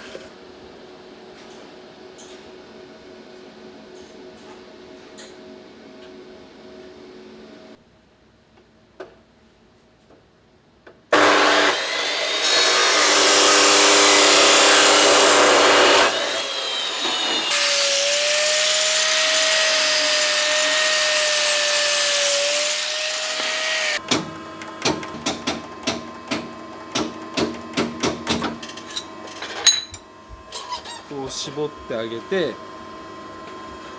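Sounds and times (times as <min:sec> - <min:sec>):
power tool cutting metal pipe: 0:11.1 - 0:24.0.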